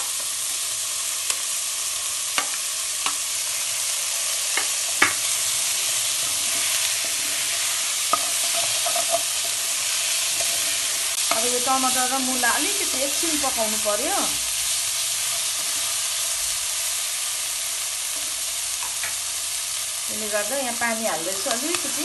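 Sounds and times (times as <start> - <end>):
food sizzling in a pan: 0.0 - 22.0
spoon knocking against pan: 4.6 - 5.2.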